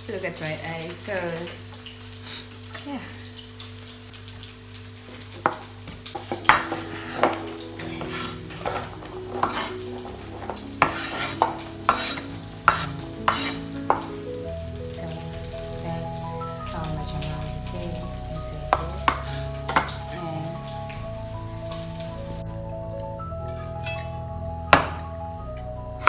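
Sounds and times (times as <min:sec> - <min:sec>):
faint sizzle: 0:00.0 - 0:22.5
spoon scraping metal pot: 0:06.2 - 0:14.1.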